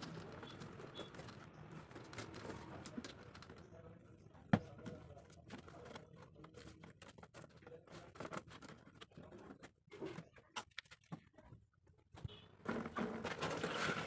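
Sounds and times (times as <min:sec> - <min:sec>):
cardboard being handled: 0:04.6 - 0:10.3.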